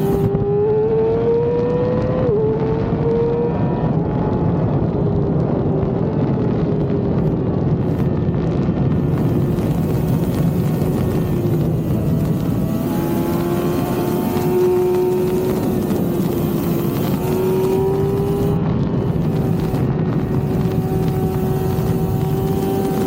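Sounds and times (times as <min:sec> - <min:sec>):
motorcycle engine at high revs: 0:00.0 - 0:23.0.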